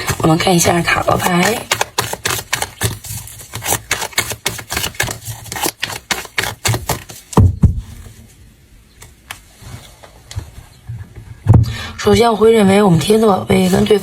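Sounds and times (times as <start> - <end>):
cards being shuffled: 0.0 - 7.4
thumps: 6.4 - 8.1.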